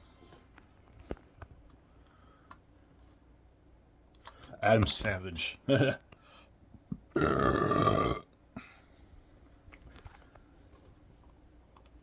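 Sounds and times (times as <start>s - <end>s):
man burping: 5.7s - 6.0s, 6.9s - 8.4s.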